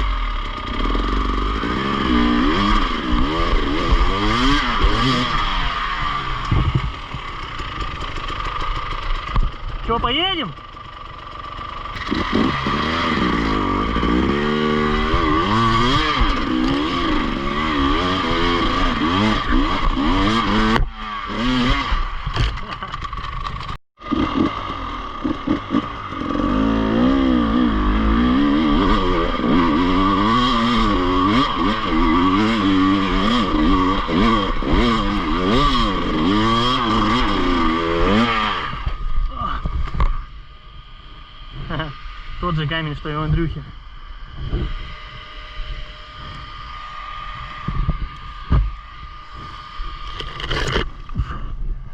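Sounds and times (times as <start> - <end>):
motorcycle engine revving: 0.0 - 51.9
clatter: 6.3 - 9.9, 21.7 - 26.0, 50.0 - 51.3.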